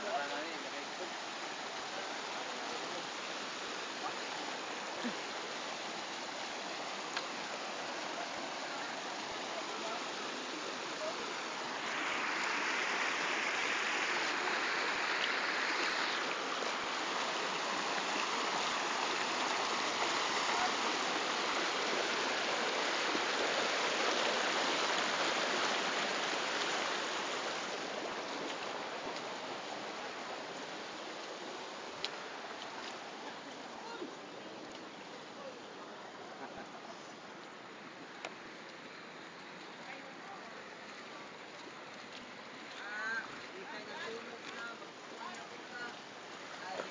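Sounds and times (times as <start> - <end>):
floodwater rushing: 0.0 - 46.9.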